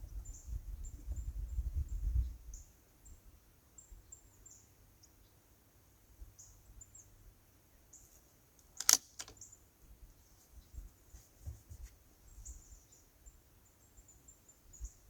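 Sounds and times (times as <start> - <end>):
weaker crack: 8.7 - 9.4
rifle shot crack: 8.8 - 9.4.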